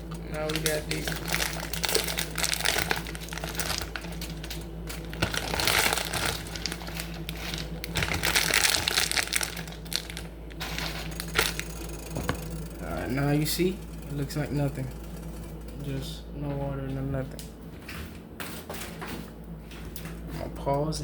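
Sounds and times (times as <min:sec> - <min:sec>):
plastic packaging crinkling: 0:00.0 - 0:13.2
steady low hum: 0:00.0 - 0:21.0.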